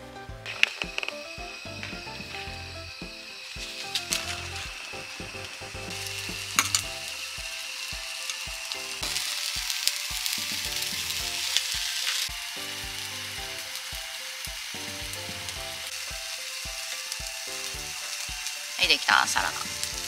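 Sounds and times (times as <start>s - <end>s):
background music with beat: 0.0s - 20.0s
food sizzling on a griddle: 0.5s - 20.0s.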